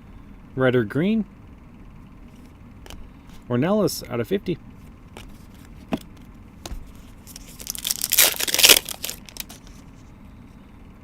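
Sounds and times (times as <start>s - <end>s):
wrapper tearing and crinkling: 7.2s - 9.7s.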